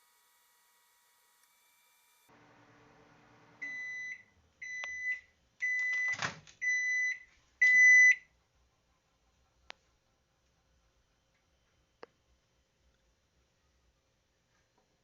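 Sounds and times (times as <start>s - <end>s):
microwave running hum: 2.3s - 5.0s
microwave beeps: 3.6s - 8.3s.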